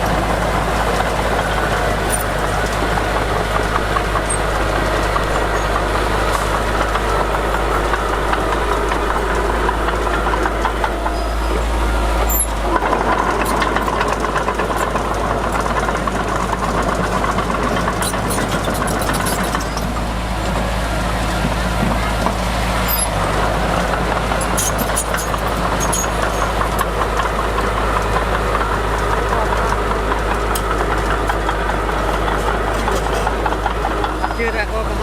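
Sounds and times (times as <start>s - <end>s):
bulldozer diesel engine running: 0.0s - 35.0s.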